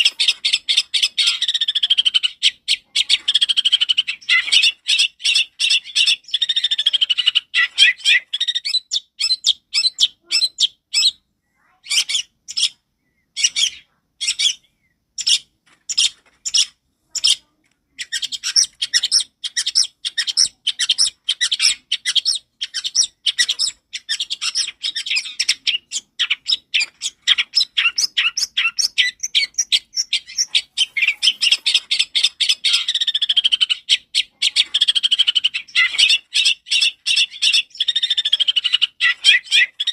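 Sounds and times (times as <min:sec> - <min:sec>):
shrike chattering song: 0:13.4 - 0:39.9.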